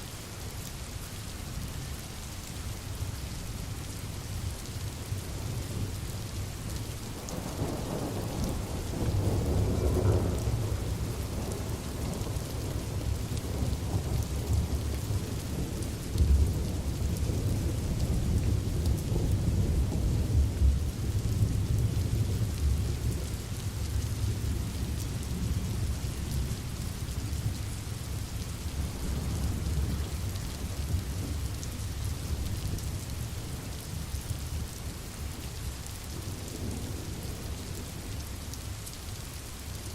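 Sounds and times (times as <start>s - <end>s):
rain falling: 0.0s - 39.9s
low rumbling thunder: 7.2s - 27.6s, 28.7s - 31.6s.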